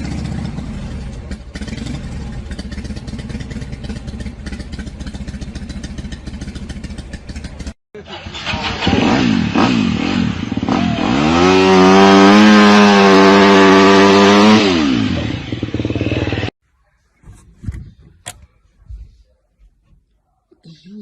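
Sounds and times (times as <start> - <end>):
engine revving: 0.0 - 16.6.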